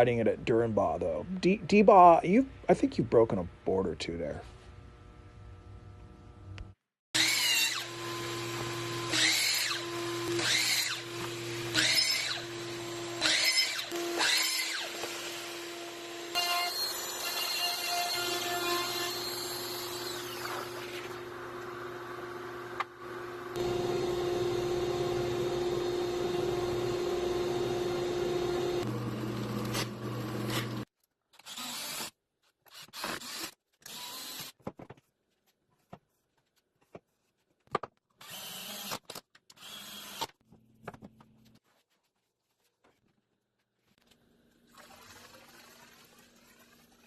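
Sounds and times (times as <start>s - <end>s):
electric power tool running: 7.2s - 17.4s, 23.0s - 30.9s.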